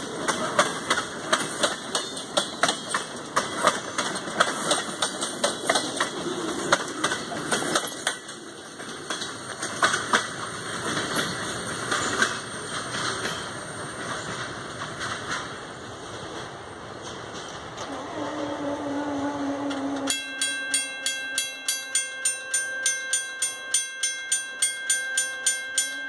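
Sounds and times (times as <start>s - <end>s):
train wheels clacking over rail joints: 0.0s - 18.4s
train rumble and hiss: 0.0s - 25.7s.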